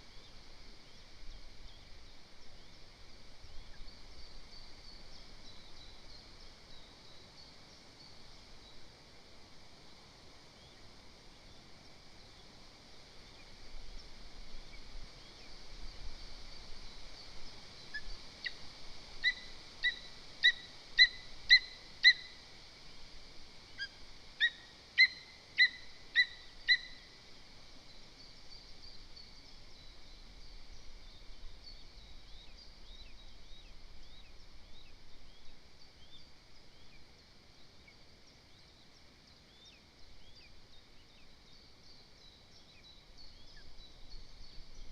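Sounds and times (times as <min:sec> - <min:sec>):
faint birdsong: 0:23.7 - 0:44.9.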